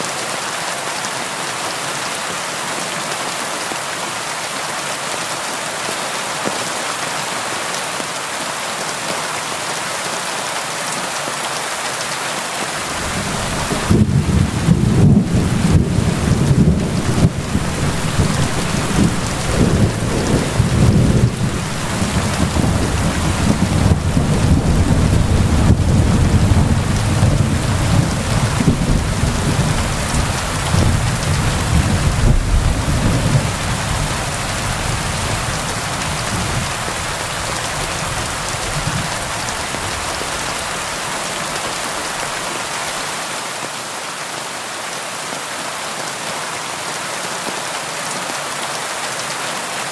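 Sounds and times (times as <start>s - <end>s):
rain on a window: 12.5s - 43.0s
thunder rumbling: 12.8s - 40.7s.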